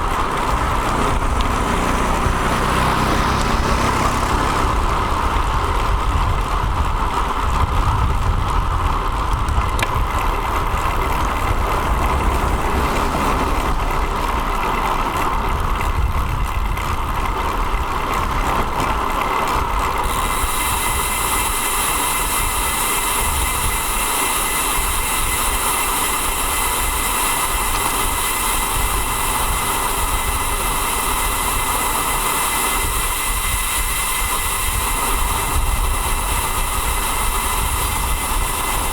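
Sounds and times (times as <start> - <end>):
wind rush: 0.0 - 14.6
road noise rumble: 0.0 - 38.9.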